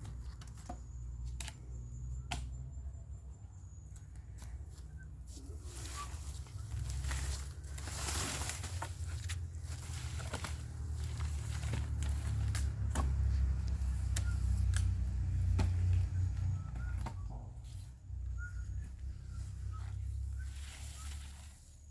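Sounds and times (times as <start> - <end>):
sharp cracks and snaps: 11.9 - 15.0.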